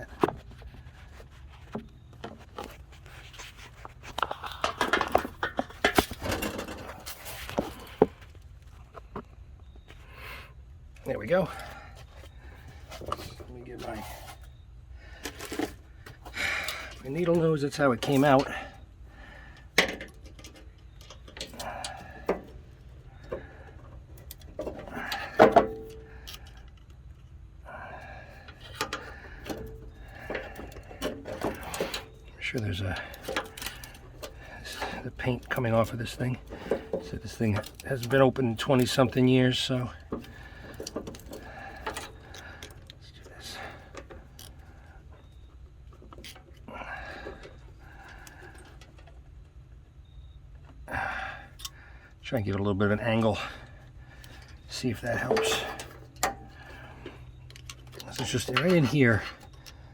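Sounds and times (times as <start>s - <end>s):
metal parts clicking and rattling: 2.5s - 8.2s, 15.2s - 49.6s, 53.1s - 59.9s
metal clicks of hand tools: 28.4s - 43.1s, 54.2s - 59.8s.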